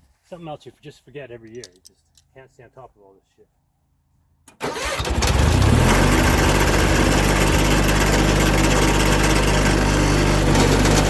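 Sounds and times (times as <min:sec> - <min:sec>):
tractor engine starting: 0:04.5 - 0:11.0.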